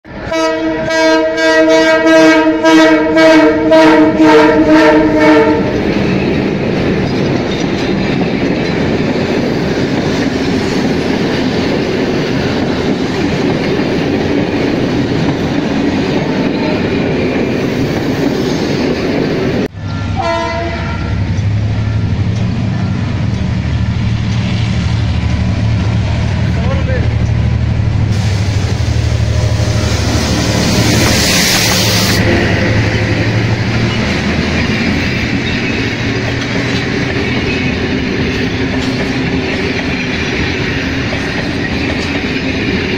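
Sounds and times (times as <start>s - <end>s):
locomotive horn blast: 0.3s - 5.8s, 19.8s - 22.1s
train wheels clattering on rails: 5.6s - 19.7s, 21.1s - 42.9s.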